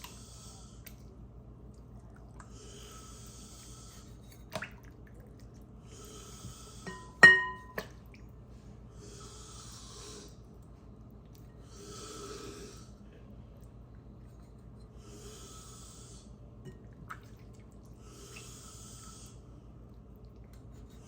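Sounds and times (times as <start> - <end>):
soft breathing: 0.0 - 1.0, 2.4 - 4.4, 5.8 - 7.2, 8.4 - 10.6, 11.4 - 16.5, 17.9 - 19.8
utensil clinking on dish: 6.9 - 7.9.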